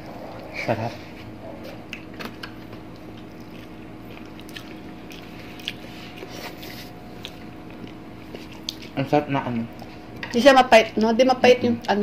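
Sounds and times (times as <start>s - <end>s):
close chewing: 2.9s - 9.0s.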